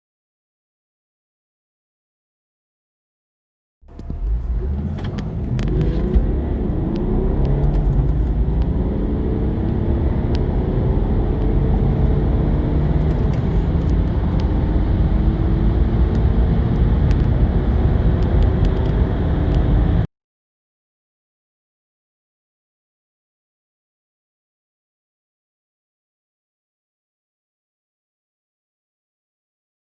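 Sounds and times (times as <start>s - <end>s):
diesel engine accelerating: 3.8s - 20.1s.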